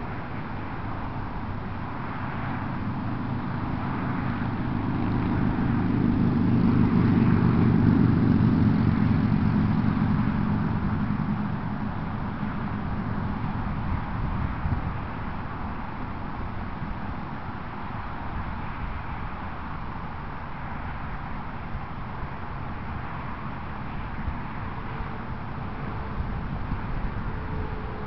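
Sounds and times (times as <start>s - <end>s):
vehicle engine passing by: 1.1s - 15.4s.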